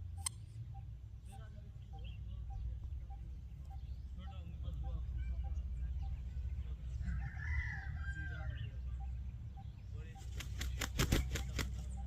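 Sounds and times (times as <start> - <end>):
rooster wings flapping: 10.3 - 11.9.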